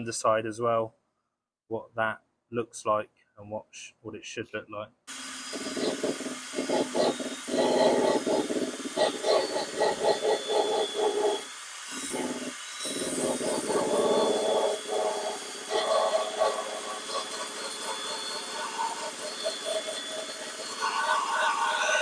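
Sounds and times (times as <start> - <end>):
power tool on sheet steel: 5.1 - 22.0.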